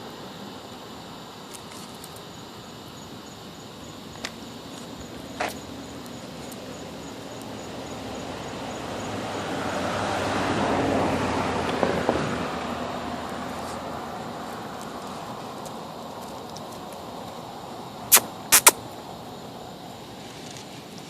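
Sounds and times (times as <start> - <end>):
car driving past: 5.6 - 15.5.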